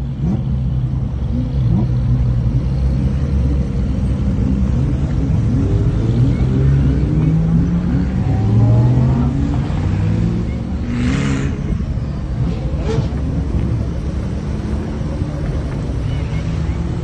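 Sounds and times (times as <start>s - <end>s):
sports car engines revving: 0.0s - 17.0s.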